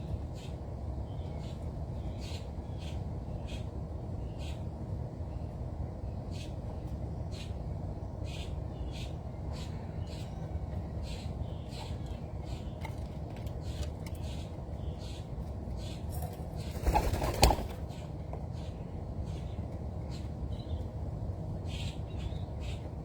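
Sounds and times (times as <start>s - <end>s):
birds chirping: 6.1s - 23.0s
wings flapping: 16.6s - 17.8s.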